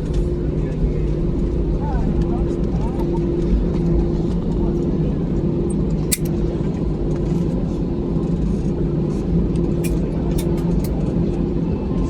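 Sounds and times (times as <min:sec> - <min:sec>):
airliner engine hum: 0:00.0 - 0:12.0
short rattling clicks: 0:06.1 - 0:06.3.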